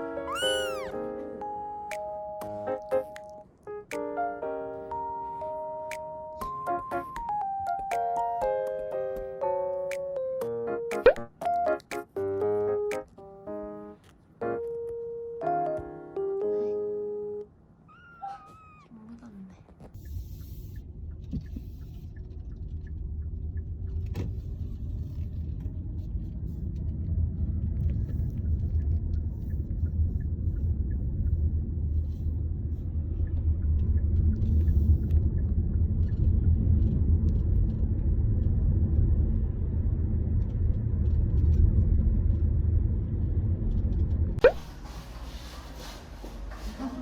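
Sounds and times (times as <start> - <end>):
low steady rumble: 18.8 - 45.6.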